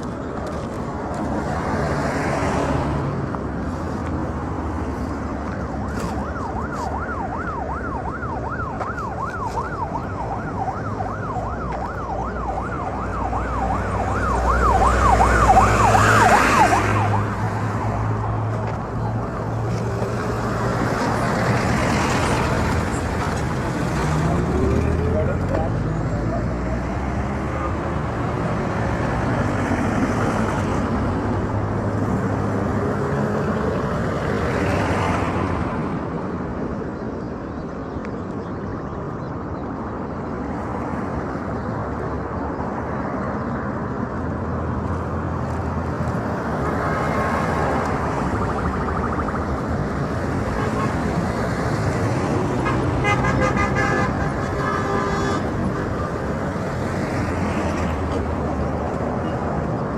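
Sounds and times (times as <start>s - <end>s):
vehicle engines passing: 0.0s - 59.9s
car horns tooting: 52.6s - 56.0s.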